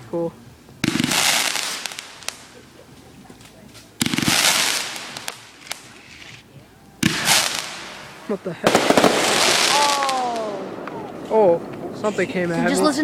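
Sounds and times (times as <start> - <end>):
hissing firework shower: 0.0 - 13.0
sharp firework pops: 0.8 - 2.6, 3.3 - 6.4, 7.0 - 12.2
fireworks bangs: 0.8 - 13.0.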